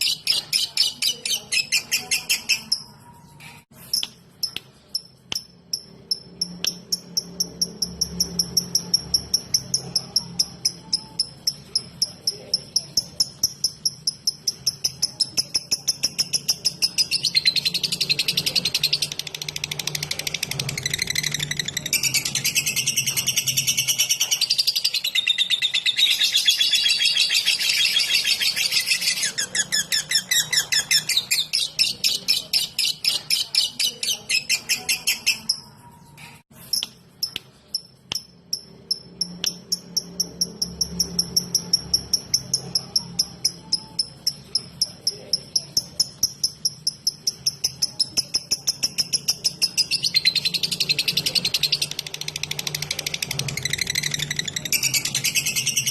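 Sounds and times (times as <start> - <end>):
lovebird chirping: 0.0 - 55.9.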